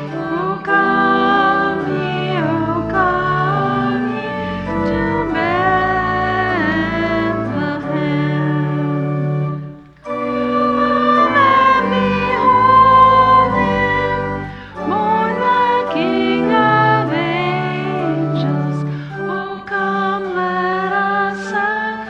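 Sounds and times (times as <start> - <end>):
congregation singing a hymn: 0.0 - 22.0
instrumental accompaniment: 0.0 - 22.0
breaths between phrases: 18.9 - 19.2.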